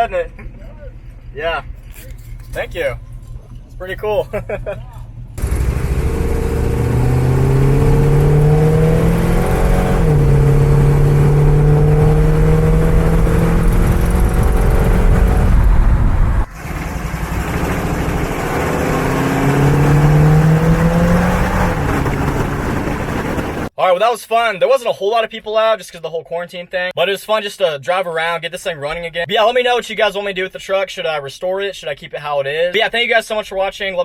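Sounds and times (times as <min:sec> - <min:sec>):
low road rumble: 0:00.0 - 0:23.7
pickup engine revving: 0:01.0 - 0:23.7.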